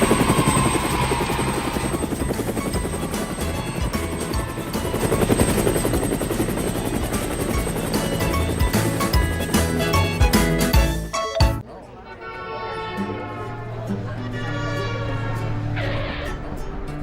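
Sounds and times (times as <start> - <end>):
cartoon helicopter rotor whirr: 0.0 - 10.6
cheerful background music: 2.0 - 11.6.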